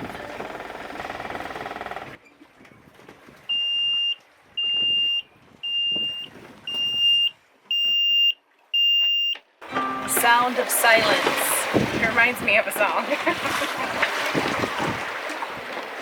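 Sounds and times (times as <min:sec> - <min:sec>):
boat engine running: 0:00.0 - 0:02.2, 0:09.7 - 0:15.0
high electronic alarm beeps: 0:03.5 - 0:09.4.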